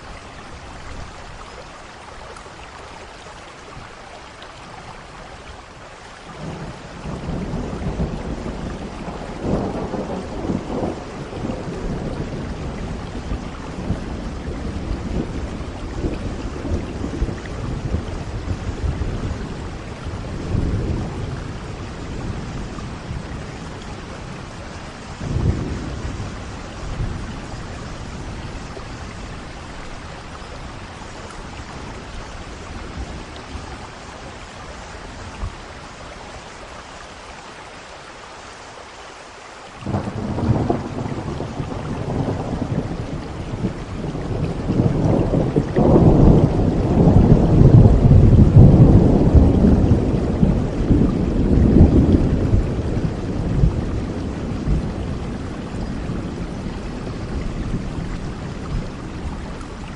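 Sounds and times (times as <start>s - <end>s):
steady rain falling: 0.0s - 59.9s
thunder rolling: 6.4s - 29.5s, 39.8s - 59.6s.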